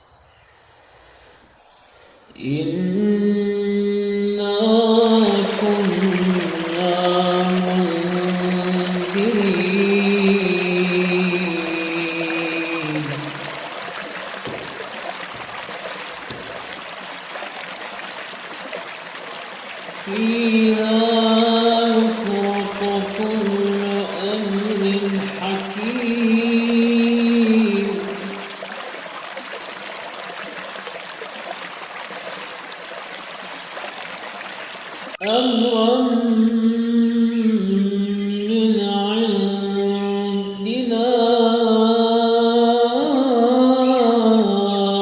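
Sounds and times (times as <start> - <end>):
steady hiss: 0.0 - 2.4
man chanting melodically: 2.4 - 13.7, 20.0 - 28.5, 35.2 - 45.0.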